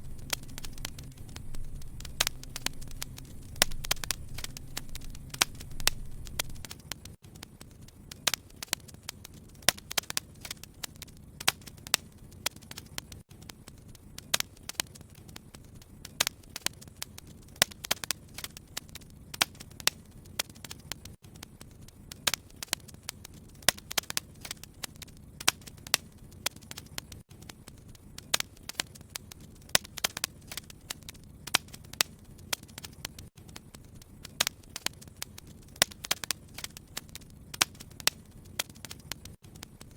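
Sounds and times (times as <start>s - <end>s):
low steady hiss: 0.0s - 8.5s
wood fire crackling and popping: 0.0s - 39.9s.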